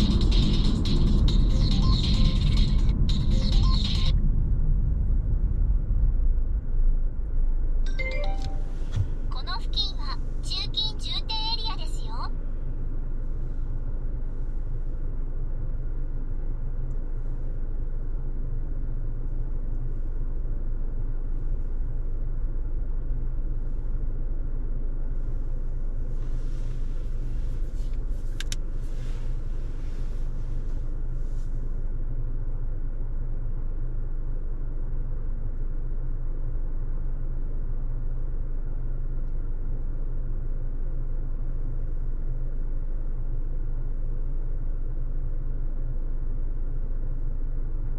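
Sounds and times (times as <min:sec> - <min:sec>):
road and engine rumble in car: 0:00.0 - 0:47.9
brief hiss: 0:26.2 - 0:31.6.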